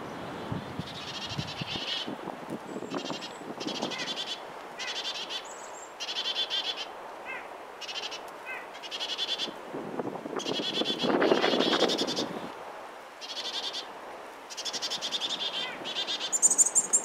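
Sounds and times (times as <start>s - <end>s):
small birds rattling calls: 2.7s - 9.5s, 10.4s - 12.3s, 14.5s - 17.0s.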